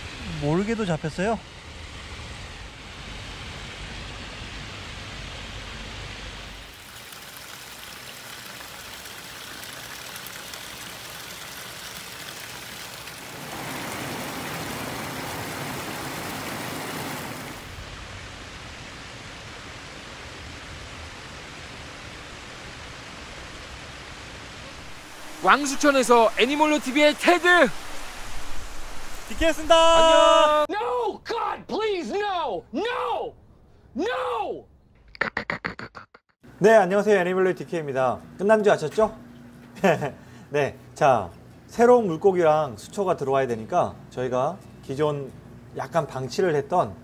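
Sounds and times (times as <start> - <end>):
water spilling over a weir: 6.5 - 17.8
shallow stream rushing: 6.5 - 18.2, 24.4 - 30.7.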